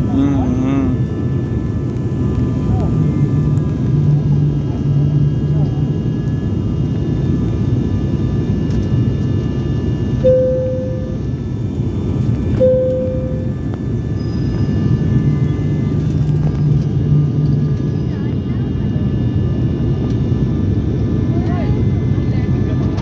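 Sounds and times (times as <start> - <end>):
airliner cabin engine drone: 0.0 - 23.0
short cabin tones: 12.6 - 13.6.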